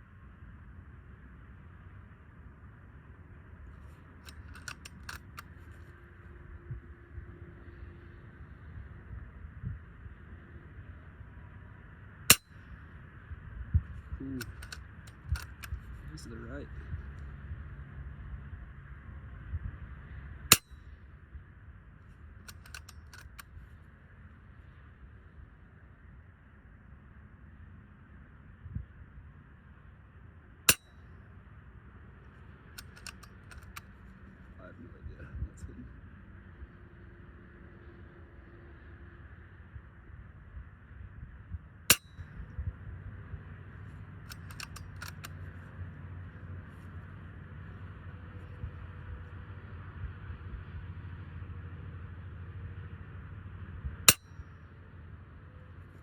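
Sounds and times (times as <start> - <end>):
quick light clicks: 4.2 - 5.7, 14.3 - 15.9, 22.5 - 23.5, 32.8 - 33.9, 44.3 - 45.5.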